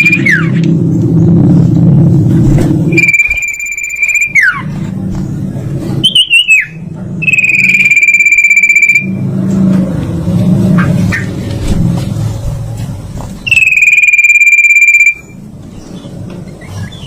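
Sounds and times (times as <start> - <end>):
steady low hum: 0.0 - 17.0
songbird singing trills: 2.9 - 4.7, 6.0 - 9.2, 13.4 - 17.0.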